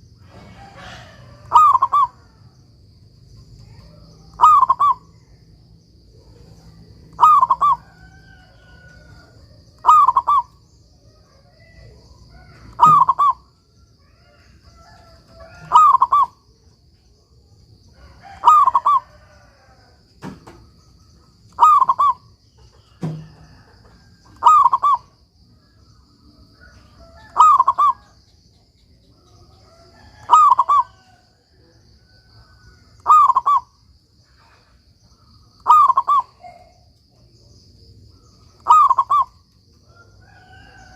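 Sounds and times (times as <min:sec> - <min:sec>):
dove cooing: 0:00.0 - 0:02.4, 0:03.6 - 0:05.2, 0:06.2 - 0:10.6, 0:11.2 - 0:16.5, 0:18.2 - 0:19.7, 0:21.5 - 0:25.2, 0:26.4 - 0:28.2, 0:30.0 - 0:31.2, 0:33.0 - 0:33.8, 0:35.6 - 0:36.9, 0:38.1 - 0:40.9.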